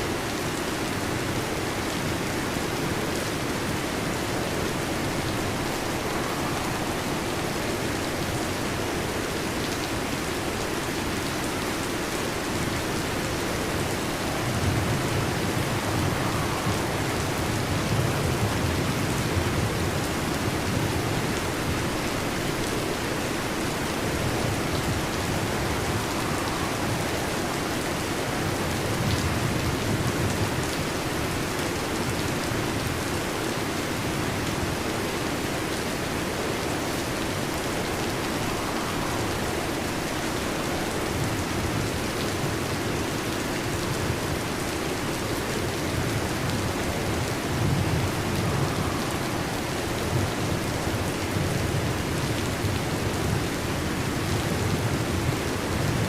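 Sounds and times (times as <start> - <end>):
steady rain falling: 0.0 - 56.0
low rumble of thunder: 12.7 - 32.9, 36.6 - 42.9, 45.5 - 56.0.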